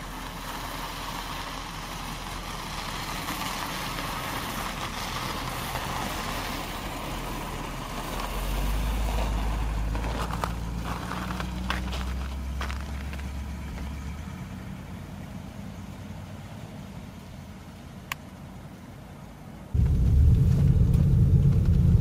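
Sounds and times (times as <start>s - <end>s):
car engine driving past on snow: 0.2s - 16.9s, 19.7s - 22.0s.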